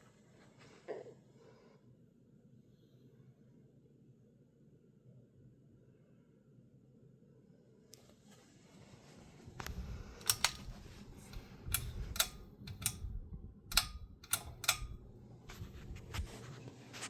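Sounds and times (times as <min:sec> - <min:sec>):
sharp clicks: 0:09.6 - 0:15.6
low steady hum: 0:09.6 - 0:16.7.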